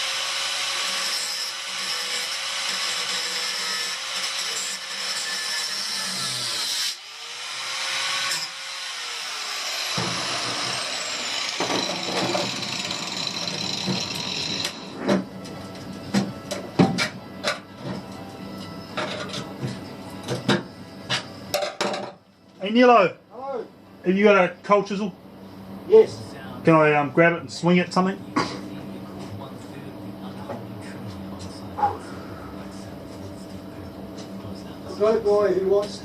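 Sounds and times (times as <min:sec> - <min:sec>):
power tool whining: 0:00.0 - 0:15.0
metallic clanks and knocks: 0:19.0 - 0:22.2.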